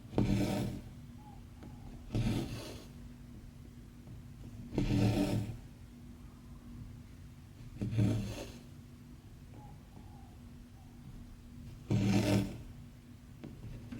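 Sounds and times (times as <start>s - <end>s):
thread rasping through fabric: 4.7s - 5.6s, 11.8s - 12.7s.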